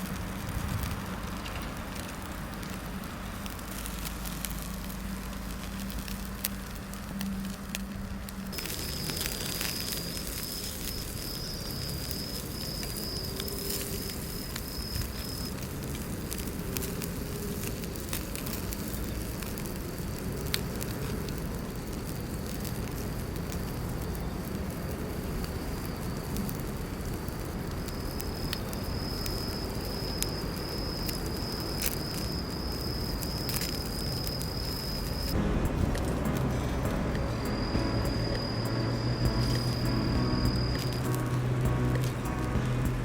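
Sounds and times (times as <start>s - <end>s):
fire crackling and popping: 0.0s - 43.0s
high insect trill: 8.6s - 15.8s, 25.2s - 43.0s.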